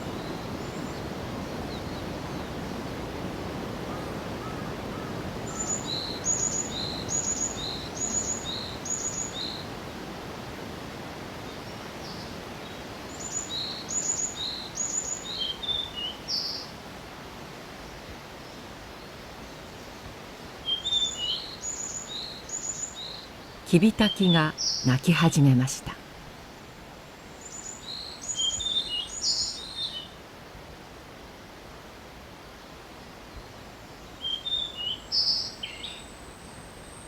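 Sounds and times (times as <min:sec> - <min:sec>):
forest ambience hiss: 0:00.0 - 0:37.0
songbird singing: 0:04.4 - 0:09.7, 0:11.5 - 0:16.7, 0:20.6 - 0:26.0, 0:27.4 - 0:30.2, 0:34.0 - 0:37.0.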